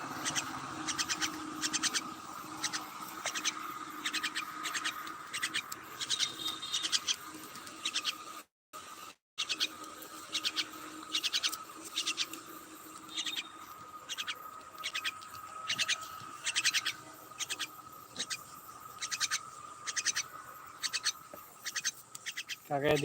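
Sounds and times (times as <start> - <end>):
myna calling: 0.0 - 8.2, 9.4 - 23.0
faint high whine: 9.4 - 23.0.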